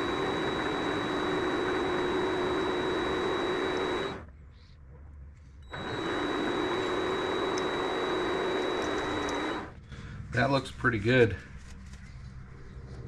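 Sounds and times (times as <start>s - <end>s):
lathe motor whine: 0.0s - 4.2s, 5.7s - 9.8s.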